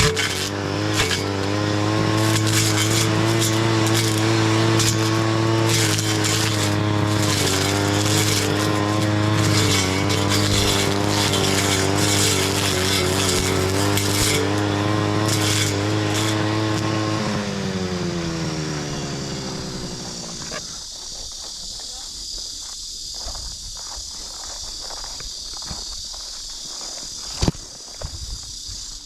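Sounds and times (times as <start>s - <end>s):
brush cutter engine running: 0.0s - 20.9s
insects chirring: 0.0s - 29.0s.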